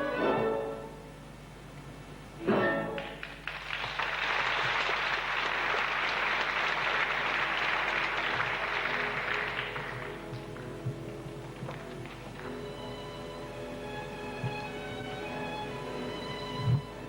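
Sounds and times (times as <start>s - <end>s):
orchestral music: 0.0s - 1.1s, 2.4s - 3.2s
audience applauding: 3.0s - 12.6s.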